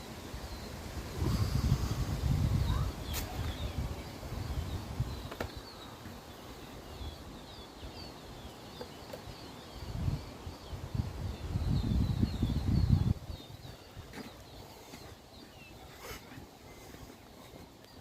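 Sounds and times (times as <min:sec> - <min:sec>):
poults peeping: 0:00.0 - 0:18.0.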